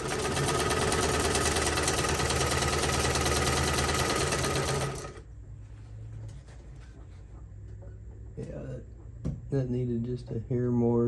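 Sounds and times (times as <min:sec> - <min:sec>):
sewing machine clattering: 0:00.0 - 0:05.2.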